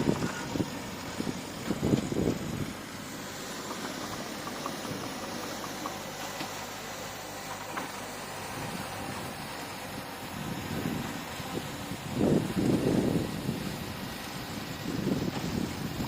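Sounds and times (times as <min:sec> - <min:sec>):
bulldozer engine running: 0:00.0 - 0:16.0.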